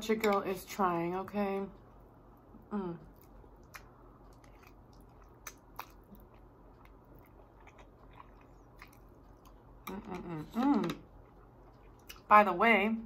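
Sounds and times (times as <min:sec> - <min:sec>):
chewing food: 0:03.0 - 0:12.3.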